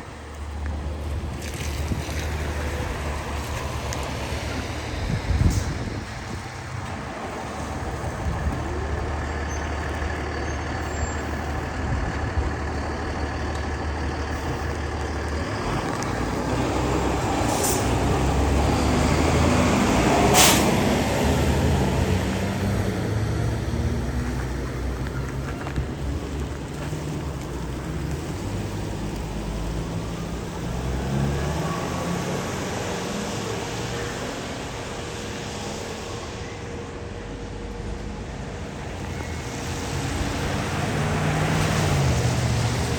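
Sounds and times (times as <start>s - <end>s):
fire engine diesel rumbling past: 0.0s - 42.9s
air brakes hissing: 17.4s - 18.0s, 20.3s - 21.0s.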